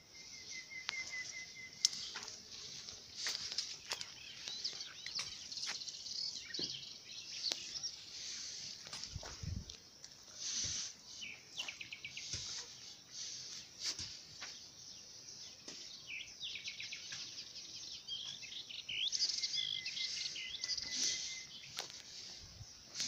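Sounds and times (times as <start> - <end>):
faint high hiss: 0.0 - 15.4
small birds chirping and trilling: 0.0 - 23.0.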